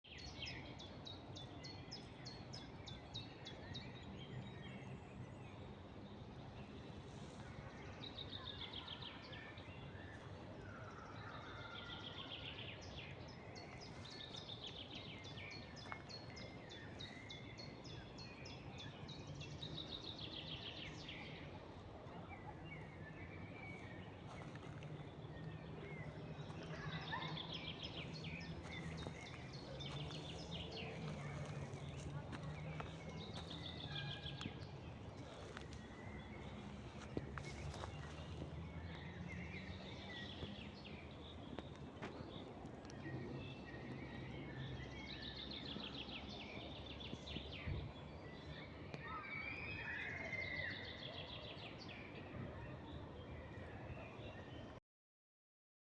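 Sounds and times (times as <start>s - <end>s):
songbirds trilling: 0.0s - 54.7s.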